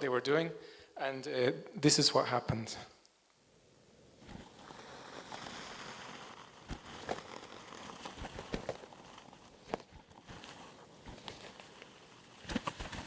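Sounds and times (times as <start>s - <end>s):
feathers rustling: 4.2s - 13.0s
wings beating with thumps: 9.6s - 13.0s.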